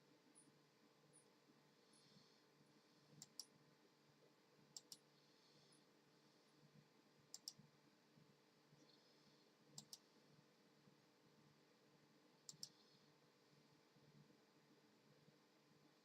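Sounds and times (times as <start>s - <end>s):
sharp clicks: 3.2s - 3.5s, 4.8s - 5.1s, 7.4s - 7.6s, 9.8s - 10.0s, 12.5s - 12.8s.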